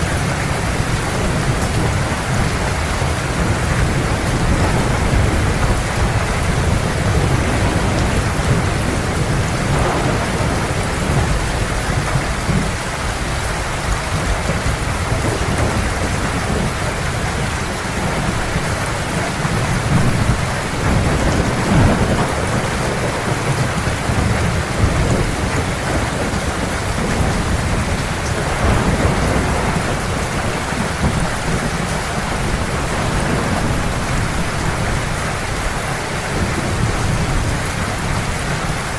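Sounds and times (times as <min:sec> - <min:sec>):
heavy rain falling: 0:00.0 - 0:38.9
rolling thunder: 0:00.0 - 0:38.9.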